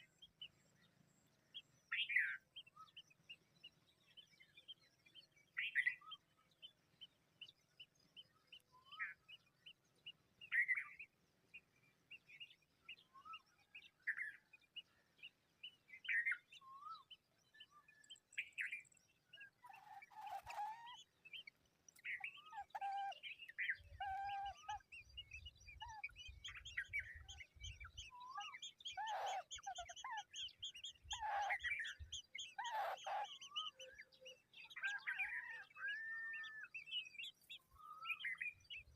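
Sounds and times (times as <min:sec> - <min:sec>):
birds chirping: 0:15.2 - 0:38.9.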